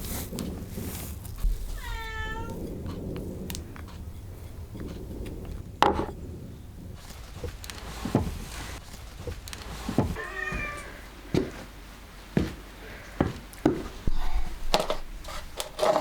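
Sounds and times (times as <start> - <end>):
cat meowing: 1.7 - 2.6, 10.2 - 11.2
sharp knocks: 5.8 - 6.2, 7.0 - 10.7.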